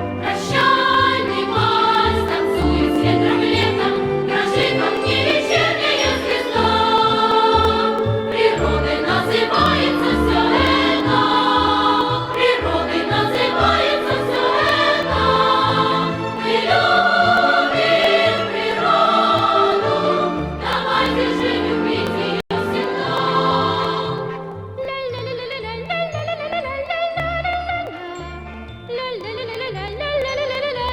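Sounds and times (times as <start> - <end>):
choir singing: 0.0 - 24.7.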